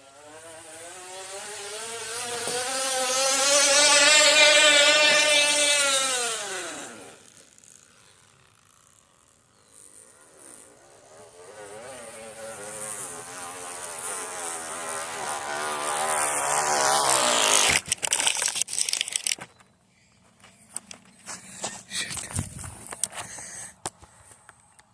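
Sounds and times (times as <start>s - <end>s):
water bottle rattling against spokes: 17.7s - 19.4s.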